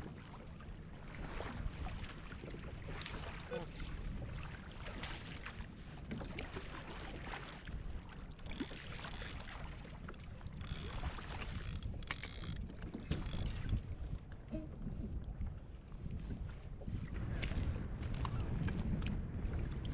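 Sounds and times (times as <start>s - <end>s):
water splashing against kayak hull: 1.2s - 14.0s
wind buffeting microphone: 7.3s - 19.9s.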